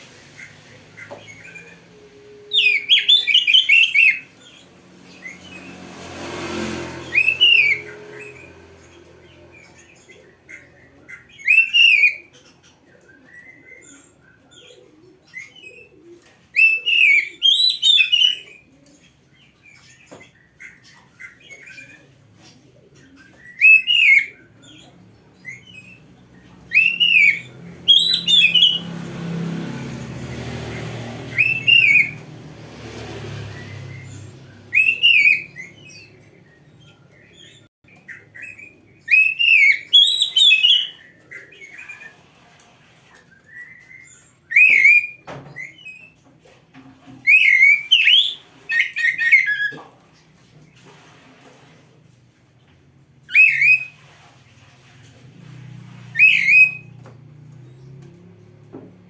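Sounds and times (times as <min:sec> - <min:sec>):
bird singing whistled phrases: 0:02.5 - 0:04.2, 0:07.1 - 0:07.8, 0:11.4 - 0:12.2, 0:23.5 - 0:24.3, 0:26.7 - 0:28.8, 0:31.3 - 0:32.2, 0:34.7 - 0:36.1, 0:39.1 - 0:41.0, 0:44.5 - 0:46.0, 0:47.3 - 0:49.7, 0:53.3 - 0:53.9, 0:56.2 - 0:56.9
soft bird chirps: 0:30.8 - 0:32.3.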